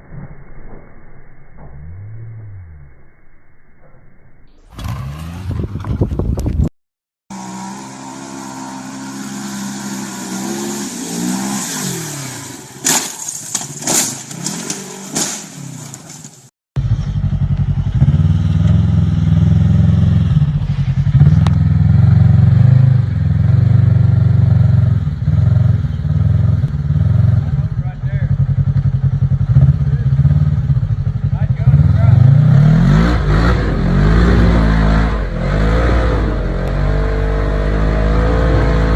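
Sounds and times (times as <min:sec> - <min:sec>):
low engine drone: 0:00.0 - 0:05.4
off-road quad engines revving: 0:04.7 - 0:06.0, 0:07.3 - 0:38.9.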